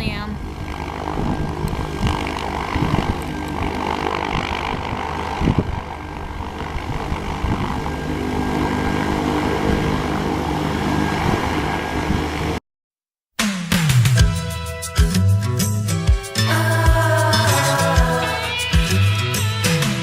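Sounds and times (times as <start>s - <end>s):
propeller aircraft engine running: 0.0s - 12.6s.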